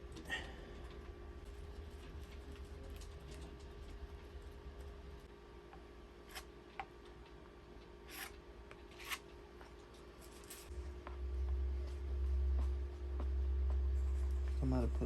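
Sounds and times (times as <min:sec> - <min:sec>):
small tools scraping and clicking: 0:08.1 - 0:09.2
low hum: 0:09.0 - 0:15.0
low rumble: 0:10.7 - 0:15.0.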